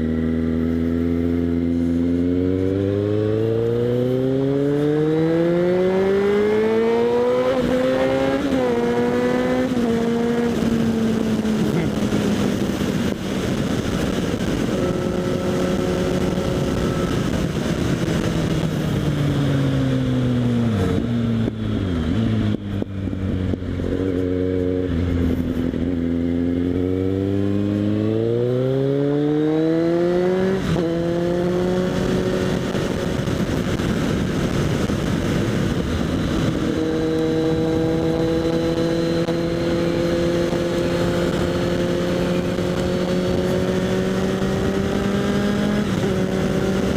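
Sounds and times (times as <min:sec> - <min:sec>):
motorcycle engine accelerating: 0:00.0 - 0:46.9.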